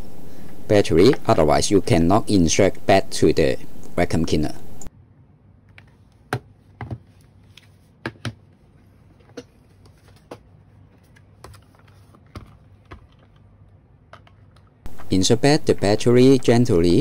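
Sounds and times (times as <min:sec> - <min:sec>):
hard plastic parts clicking: 0:14.1 - 0:16.0.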